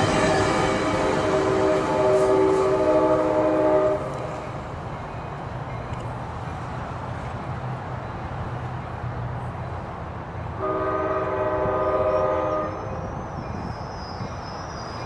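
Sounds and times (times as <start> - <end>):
train passing with rumble: 0.0 - 15.0
train air horn blast: 0.1 - 4.4, 10.6 - 13.0.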